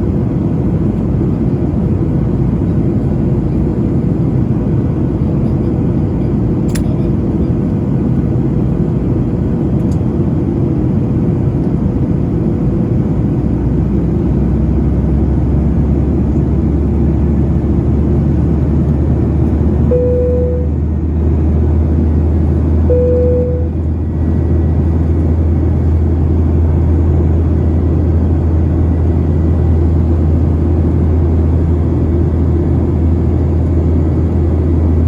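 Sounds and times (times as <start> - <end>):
jet engines and airflow in cabin: 0.0 - 35.0
faint steady tone: 19.9 - 20.8, 22.9 - 23.8.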